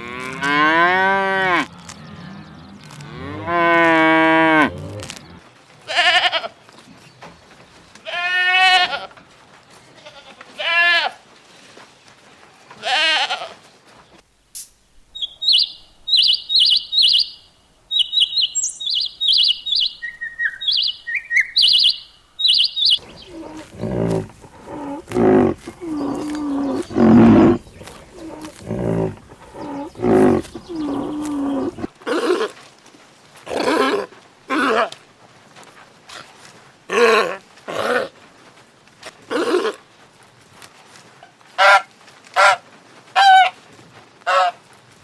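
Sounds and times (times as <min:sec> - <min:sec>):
low wavering animal calls: 0:00.4 - 0:05.4, 0:17.9 - 0:32.5
bird chirping: 0:01.7 - 0:03.6, 0:15.0 - 0:31.9.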